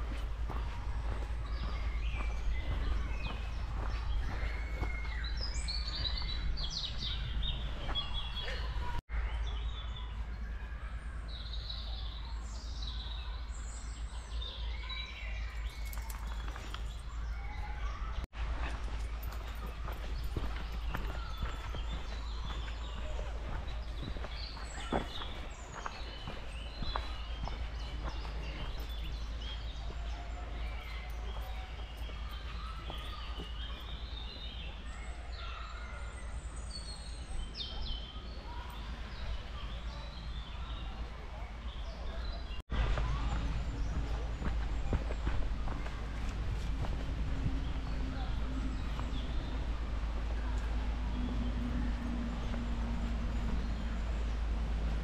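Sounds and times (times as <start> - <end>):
songbirds singing: 0.0 - 55.0
steady low rumble: 42.6 - 55.0.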